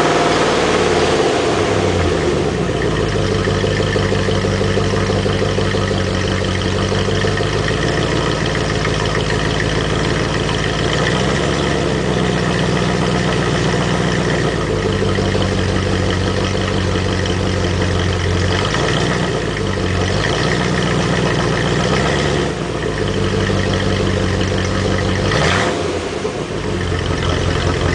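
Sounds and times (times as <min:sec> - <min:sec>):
car engine exhaust: 0:00.0 - 0:27.9.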